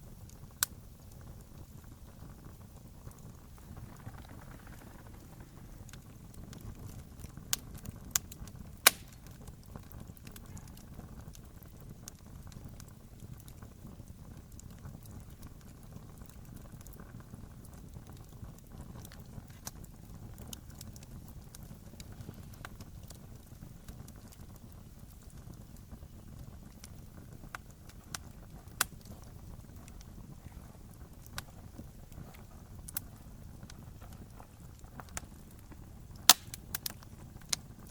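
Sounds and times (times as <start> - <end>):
campfire flames rumbling: 0.0 - 37.9
fire crackling: 0.0 - 37.9
sharp pops from fire: 0.0 - 37.9.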